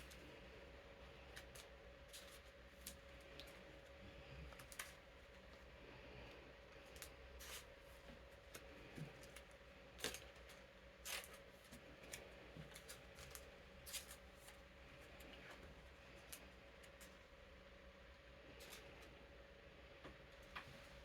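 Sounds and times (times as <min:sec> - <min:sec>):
electric fan humming: 0:00.0 - 0:21.0
cards rustling in plastic sleeves: 0:01.0 - 0:05.7, 0:06.7 - 0:17.2.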